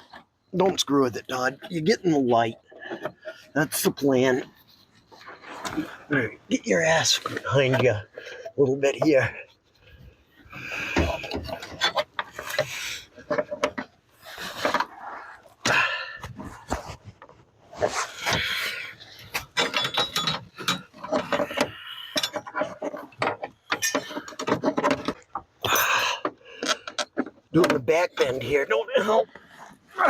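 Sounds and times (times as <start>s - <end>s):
rubbing and scraping: 0.0s - 25.3s.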